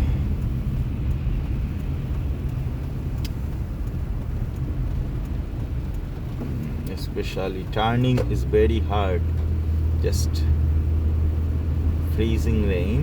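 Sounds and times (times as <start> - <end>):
car interior engine rumble: 0.0 - 13.0
sharp tick: 0.4 - 7.0.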